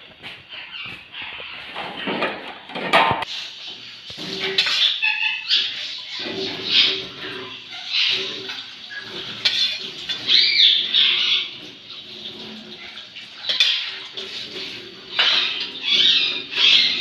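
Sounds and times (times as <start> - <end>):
metal utensils clinking on cookware: 2.0 - 17.0
birds calling: 3.6 - 17.0.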